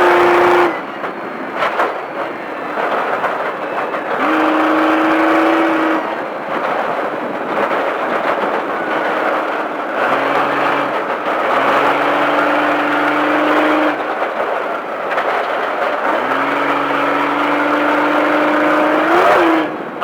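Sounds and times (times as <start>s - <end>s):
truck engine under throttle: 0.0s - 20.0s
tyre and wind noise: 0.0s - 20.0s.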